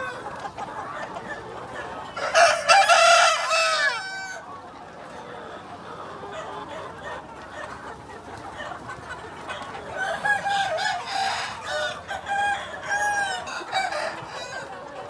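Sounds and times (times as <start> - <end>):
chickens clucking: 0.0 - 15.0
rooster crowing: 2.2 - 4.4.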